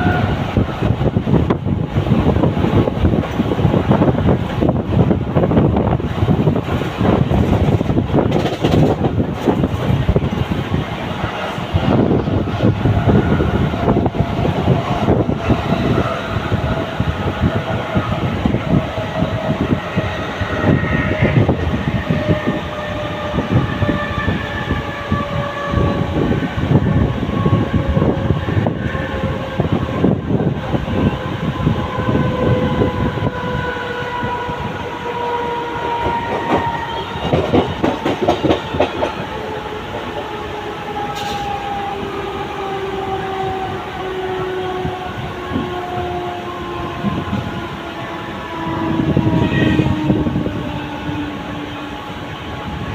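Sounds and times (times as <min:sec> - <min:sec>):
train whine falling in pitch: 0:00.0 - 0:10.3, 0:11.3 - 0:52.9
train wheels clattering over track joints: 0:00.8 - 0:10.7, 0:35.8 - 0:41.6.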